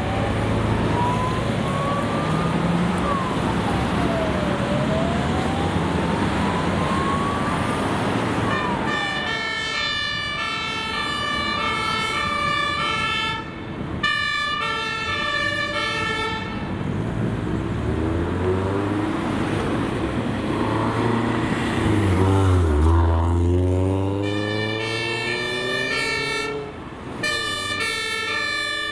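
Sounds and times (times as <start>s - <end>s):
wailing sirens: 0.0s - 16.9s, 18.2s - 28.9s
two-tone horn: 24.2s - 28.9s.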